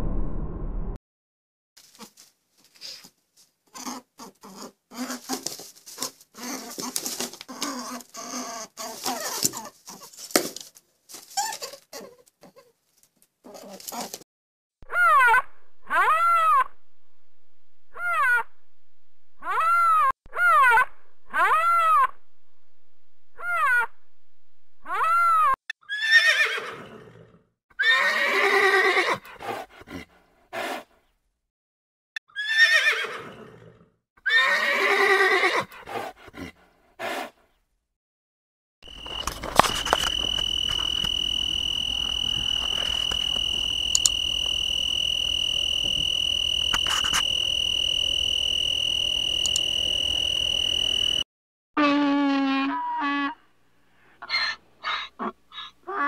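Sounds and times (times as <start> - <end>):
crickets chirping: 38.8 - 51.2
donkey braying: 38.9 - 51.1, 54.2 - 56.0.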